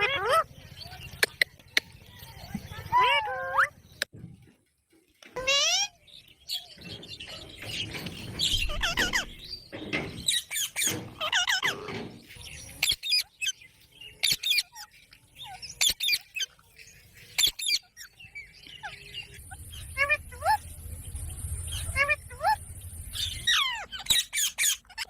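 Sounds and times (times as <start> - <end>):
parrot chirping and shrieking: 0.0 - 0.5, 2.8 - 3.9, 5.4 - 13.6, 14.2 - 20.6, 21.7 - 25.0.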